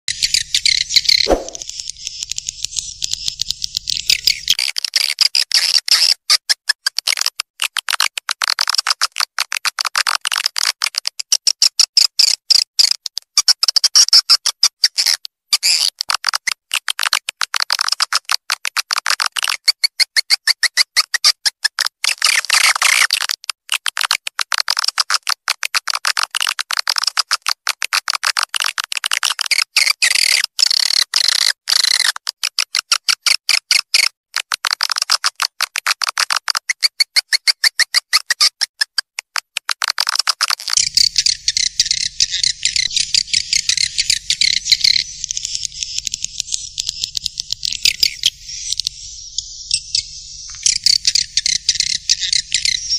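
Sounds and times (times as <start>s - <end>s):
swiftlet chirps and twitters: 40.8s - 52.9s.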